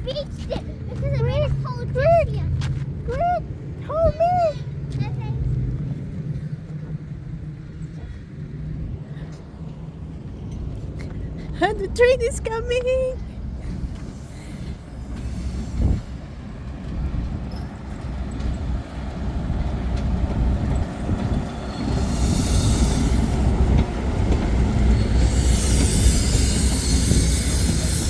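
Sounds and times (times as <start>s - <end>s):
train rumbling on rails: 0.0s - 28.0s
wheel squeal: 17.5s - 17.9s, 21.4s - 23.6s, 24.8s - 28.0s.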